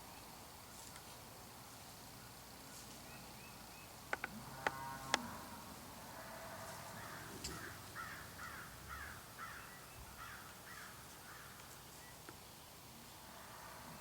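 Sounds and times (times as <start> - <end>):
bird harsh raspy call: 7.0 - 11.5.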